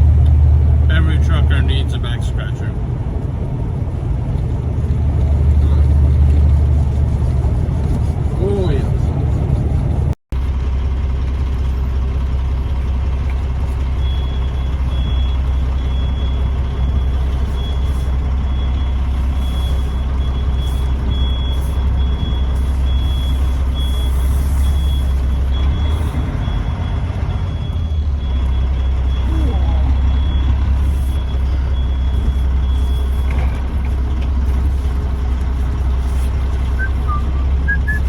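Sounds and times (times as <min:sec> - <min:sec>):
truck low drone from cab: 0:00.0 - 0:38.0
high electronic beep: 0:36.8 - 0:38.0.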